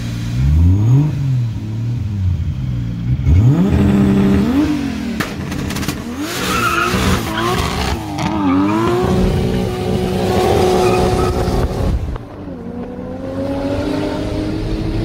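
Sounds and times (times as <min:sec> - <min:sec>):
car engine accelerating hard: 0:03.1 - 0:15.0.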